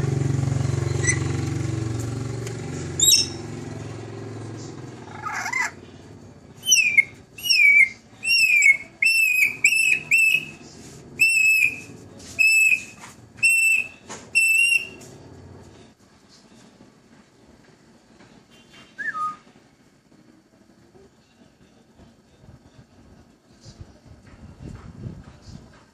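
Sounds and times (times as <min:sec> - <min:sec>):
engine hum: 0:00.0 - 0:16.0
bird whistling notes: 0:03.0 - 0:03.4, 0:06.6 - 0:10.6, 0:11.2 - 0:15.0, 0:18.7 - 0:19.5.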